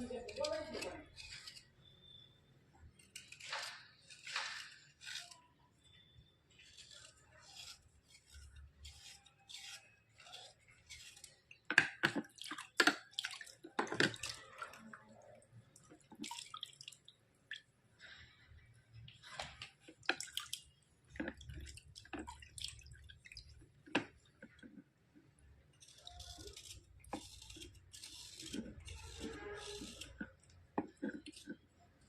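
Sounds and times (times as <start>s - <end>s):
wet scraping: 0.0s - 32.0s
dripping water: 11.8s - 24.6s.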